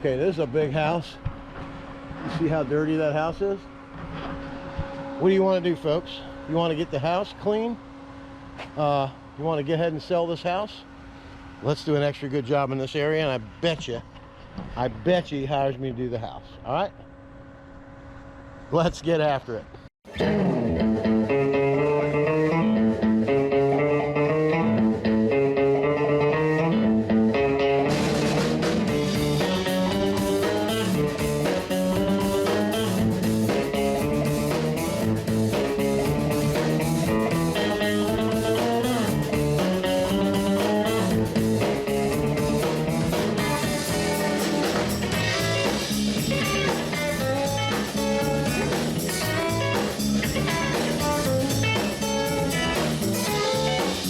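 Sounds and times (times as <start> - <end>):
blues-rock guitar music: 20.1 - 54.0
drums: 27.8 - 54.0.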